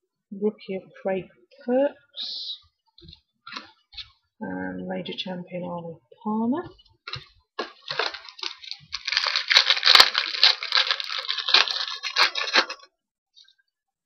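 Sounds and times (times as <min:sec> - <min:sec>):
plastic wrapper crinkling: 0:07.0 - 0:12.9.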